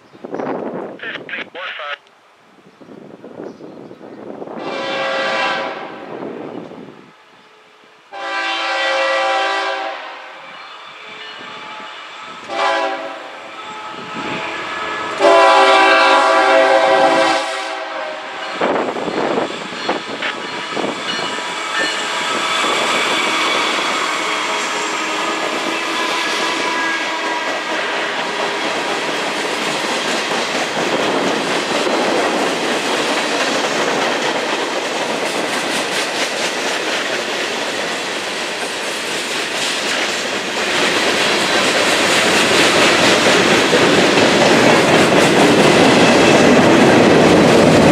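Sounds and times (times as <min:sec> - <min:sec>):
locomotive horn: 0:04.6 - 0:06.1, 0:08.1 - 0:18.7, 0:20.6 - 0:28.2
train wheels clattering over rails: 0:18.4 - 0:47.9.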